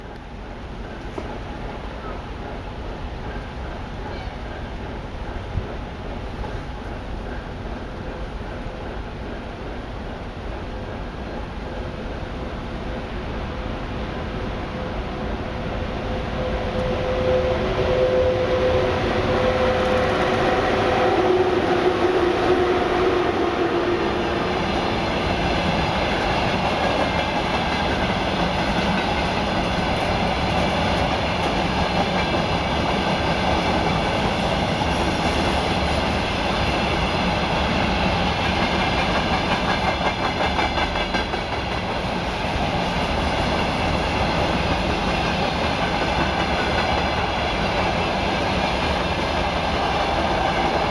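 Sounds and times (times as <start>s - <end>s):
freight train rumble: 0.0s - 50.9s
train wheels clacking over rail joints: 19.1s - 22.8s, 24.6s - 50.9s.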